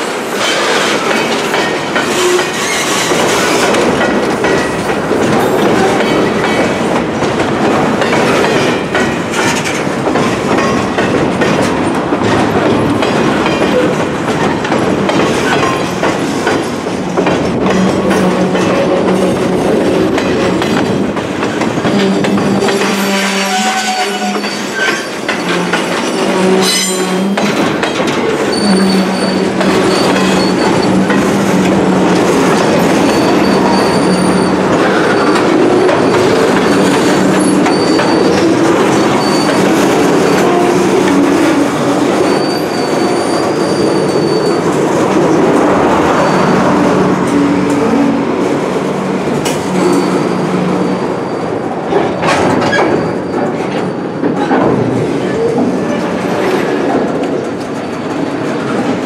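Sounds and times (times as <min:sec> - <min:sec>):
rail-joint clacks: 0:00.0 - 0:59.0
wheels rumbling on rail: 0:00.0 - 0:59.0
high wheel squeal: 0:21.9 - 0:27.6, 0:28.3 - 0:54.4.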